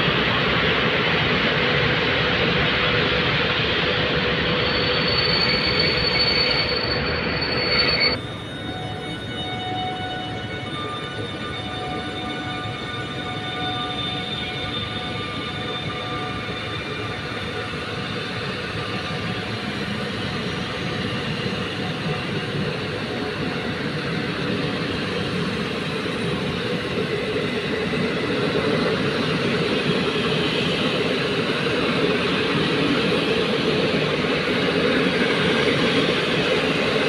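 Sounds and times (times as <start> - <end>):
train coaches rumbling on rails: 0.0 - 37.0
locomotive whining tone: 4.6 - 16.6.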